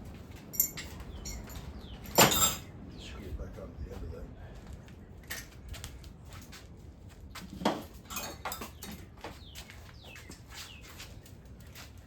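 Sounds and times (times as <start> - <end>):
metal tools clinking together: 0.5 - 2.7, 7.7 - 9.1.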